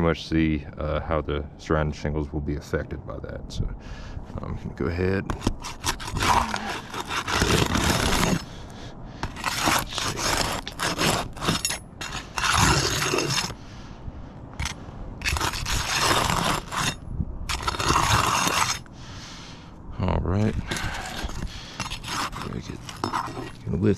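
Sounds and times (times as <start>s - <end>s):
metal bar scraping under shingles: 5.3s - 13.6s, 14.6s - 18.9s, 20.5s - 23.9s.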